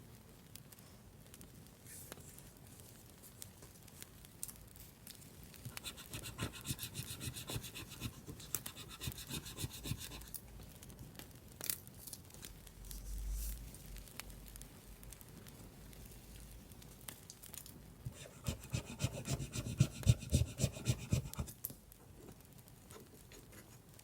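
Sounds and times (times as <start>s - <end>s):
scratching on paper: 5.7s - 10.4s, 18.1s - 21.6s.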